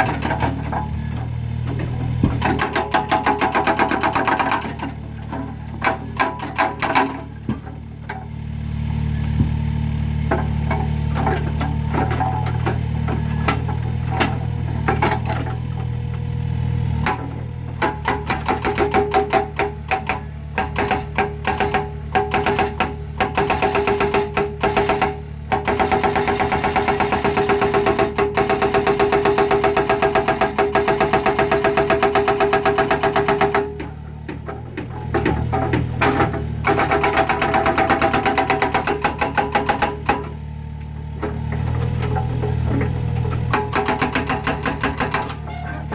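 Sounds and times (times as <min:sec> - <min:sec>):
hydraulic breaker hammering concrete: 0:00.0 - 0:08.4, 0:09.4 - 0:16.0, 0:16.9 - 0:45.9
excavator engine running: 0:00.0 - 0:45.9.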